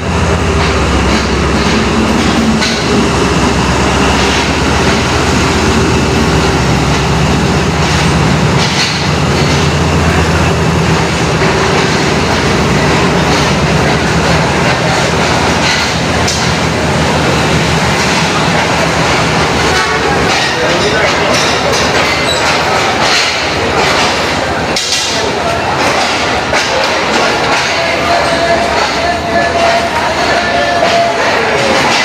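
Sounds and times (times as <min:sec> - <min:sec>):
locomotive engine running: 0:00.0 - 0:32.0
train wheels clattering: 0:00.0 - 0:32.0.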